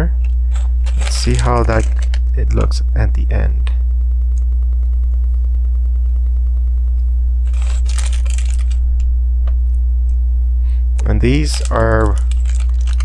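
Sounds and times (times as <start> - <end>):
low electrical hum: 0.0 - 13.0
plastic pieces clicking and rattling: 0.2 - 2.7, 7.5 - 8.8, 11.4 - 13.0.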